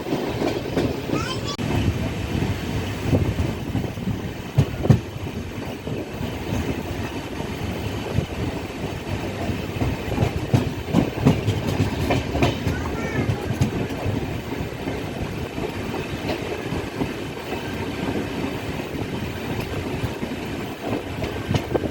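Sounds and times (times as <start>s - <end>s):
train wheels rumbling on track: 0.0s - 21.9s
knocks and rattles: 9.4s - 14.6s.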